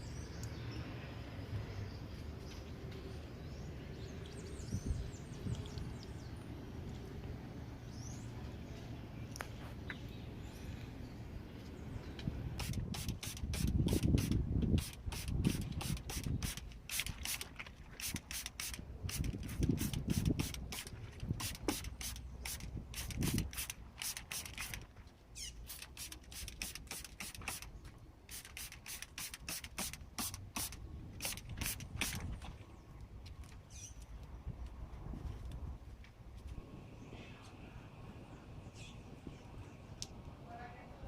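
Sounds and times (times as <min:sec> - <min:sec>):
spray bottle hissing: 0:12.6 - 0:24.8, 0:25.6 - 0:27.7, 0:28.3 - 0:32.2.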